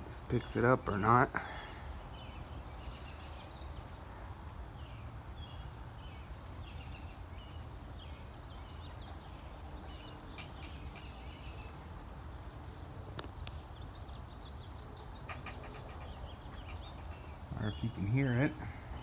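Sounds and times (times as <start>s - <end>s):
birds chirping: 0.0s - 19.0s
low background noise: 0.0s - 19.0s.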